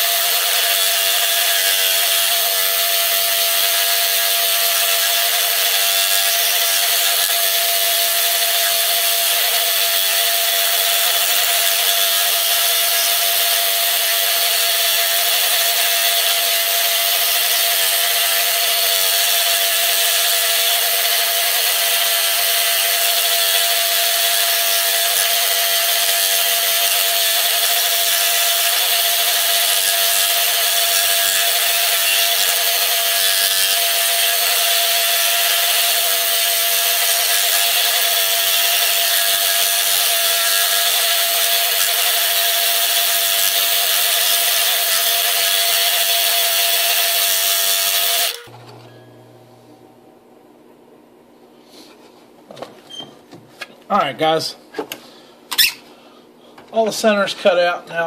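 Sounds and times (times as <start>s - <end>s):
scroll saw cutting wood: 0.0s - 48.6s.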